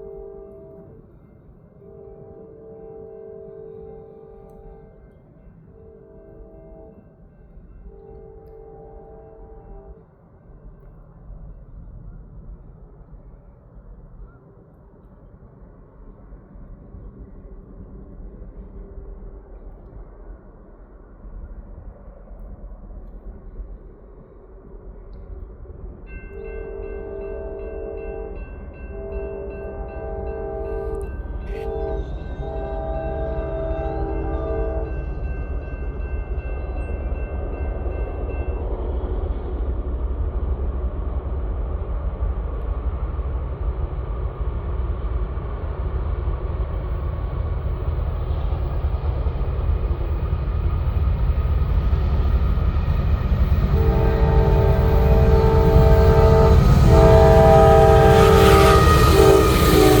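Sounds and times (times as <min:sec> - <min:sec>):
locomotive horn blasts: 0:00.0 - 0:01.1, 0:01.8 - 0:05.1, 0:05.7 - 0:07.0, 0:07.9 - 0:10.0, 0:26.4 - 0:35.2, 0:53.7 - 1:00.0
locomotive engine rumble: 0:41.4 - 1:00.0.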